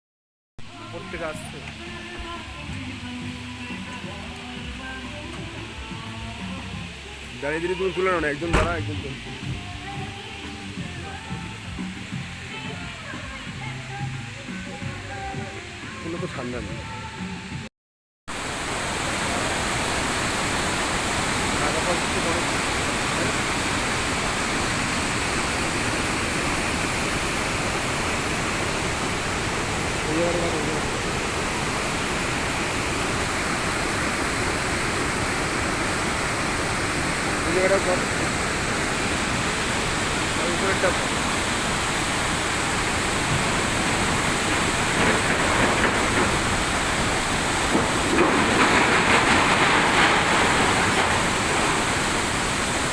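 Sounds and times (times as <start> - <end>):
waterfall pouring: 18.3 - 52.9.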